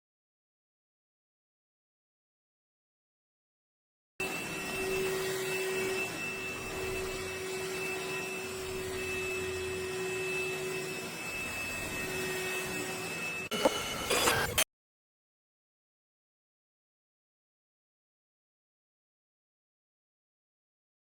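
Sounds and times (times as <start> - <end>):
stick vacuum whining hum: 4.2 - 14.6.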